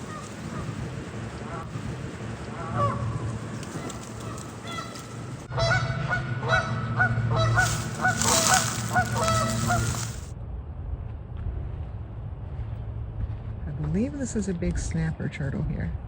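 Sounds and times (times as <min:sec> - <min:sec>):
waterfowl calling: 0:00.0 - 0:10.3
low rumble: 0:00.0 - 0:16.0.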